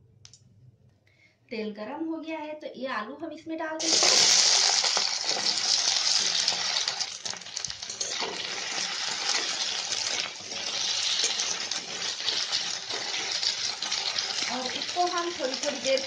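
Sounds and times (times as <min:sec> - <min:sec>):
potatoes sizzling in oil: 0:03.8 - 0:16.0.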